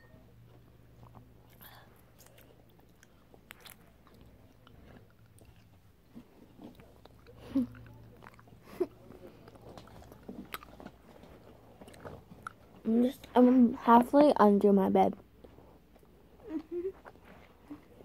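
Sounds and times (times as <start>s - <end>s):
chewing taffy candy: 0.4s - 12.9s.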